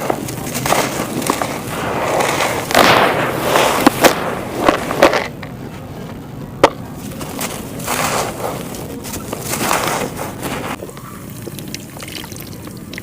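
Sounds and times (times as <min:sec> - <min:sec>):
dry clay crumbling and crunching: 0:00.0 - 0:13.0.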